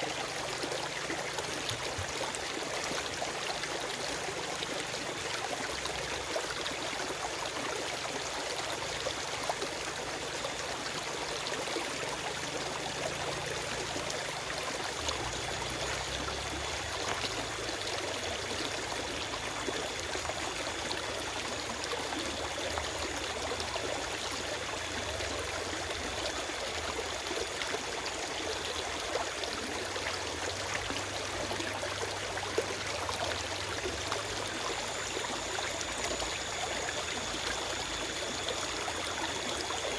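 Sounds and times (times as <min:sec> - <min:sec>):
stream rushing over rocks: 0:12.0 - 0:39.9.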